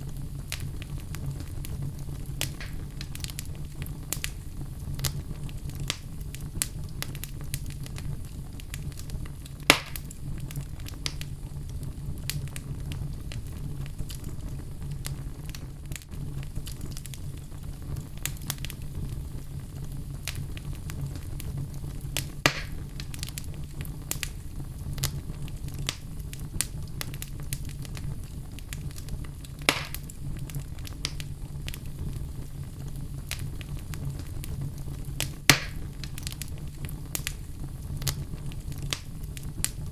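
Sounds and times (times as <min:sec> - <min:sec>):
fire crackling: 0:00.0 - 0:39.9
sharp fire pops: 0:00.0 - 0:39.9.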